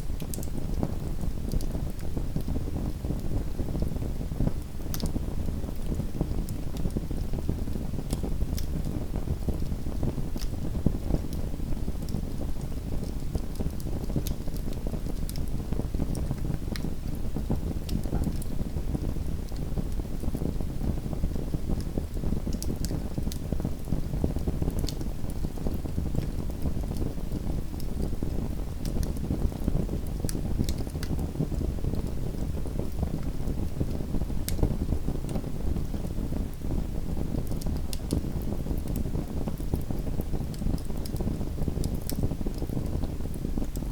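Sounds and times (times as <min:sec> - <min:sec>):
fire burning in fireplace: 0:00.0 - 0:43.9
wood crackling and popping: 0:17.5 - 0:18.7, 0:28.8 - 0:36.1, 0:37.4 - 0:43.9.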